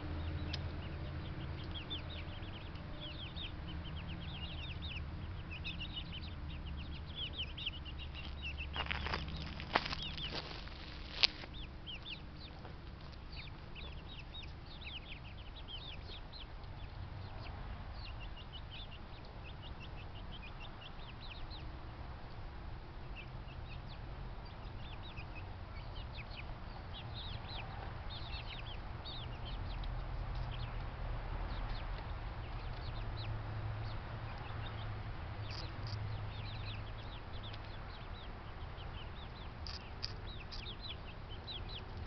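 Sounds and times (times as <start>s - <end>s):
birds chirping: 0.0s - 42.0s.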